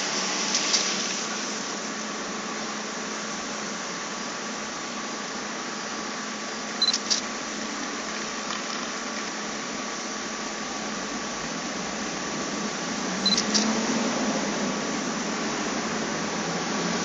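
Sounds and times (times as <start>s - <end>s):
mechanical hum and hiss: 0.0s - 17.0s
brief beep: 6.8s - 7.0s, 13.2s - 13.6s.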